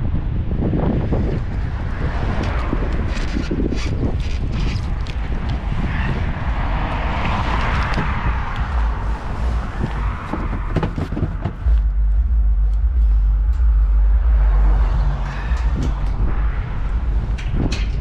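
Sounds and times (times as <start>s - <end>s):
low vehicle rumble: 0.0s - 18.0s
vehicle rushing past: 5.6s - 18.0s.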